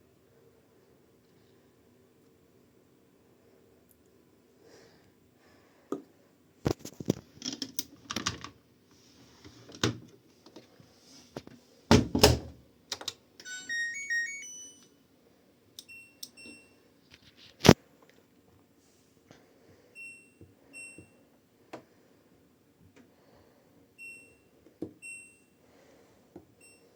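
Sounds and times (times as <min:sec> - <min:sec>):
washing machine clicks and knocks: 0:11.9 - 0:12.6
button beeps: 0:13.4 - 0:14.9
electronic power-on melody: 0:13.4 - 0:14.9.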